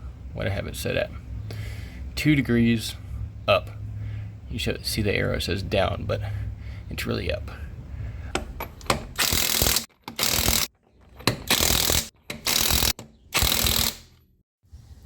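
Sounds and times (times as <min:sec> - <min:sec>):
ratchet wrench clicking: 0:08.8 - 0:14.2.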